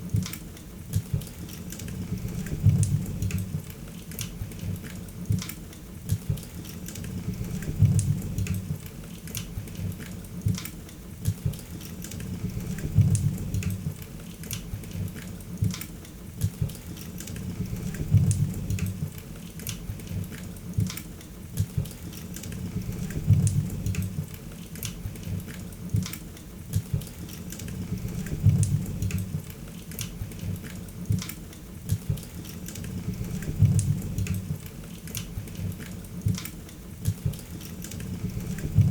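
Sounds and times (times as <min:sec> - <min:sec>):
low rumble of flames: 0:02.0 - 0:03.7, 0:07.0 - 0:08.9, 0:12.2 - 0:14.0, 0:17.4 - 0:19.2, 0:22.5 - 0:24.4, 0:27.7 - 0:29.5, 0:32.8 - 0:34.7, 0:38.0 - 0:38.9.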